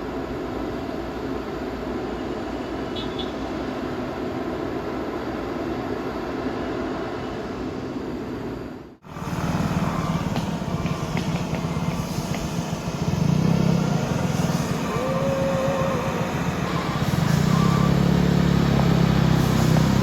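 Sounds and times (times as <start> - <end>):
truck engine rumbling: 9.0 - 20.0.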